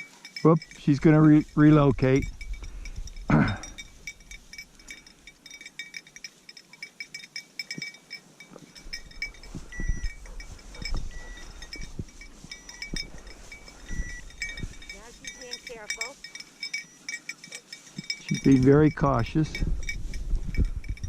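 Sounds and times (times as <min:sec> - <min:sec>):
small bell tinkling: 0:00.0 - 0:21.0
soft low thumps: 0:08.9 - 0:16.4, 0:18.0 - 0:21.0.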